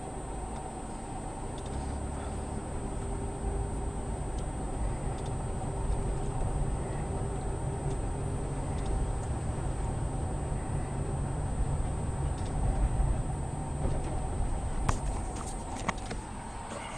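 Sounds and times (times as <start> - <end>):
car rumble from inside: 0.0 - 16.9
faint ticks: 1.6 - 2.0, 4.3 - 9.4.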